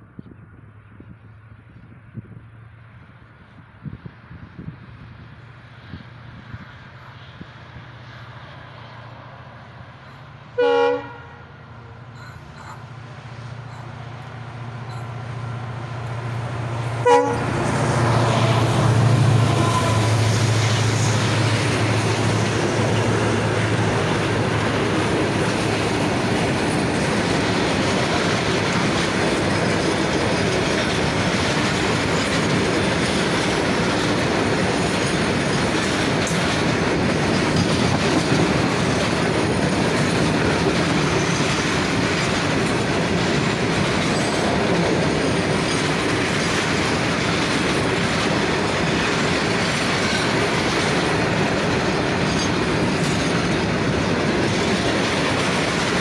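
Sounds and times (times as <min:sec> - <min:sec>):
diesel locomotive engine: 0:00.0 - 0:56.0
short train horn toot: 0:10.6 - 0:11.6, 0:17.0 - 0:17.5, 0:19.4 - 0:20.3
wagon wheels clickety-clack: 0:24.0 - 0:56.0.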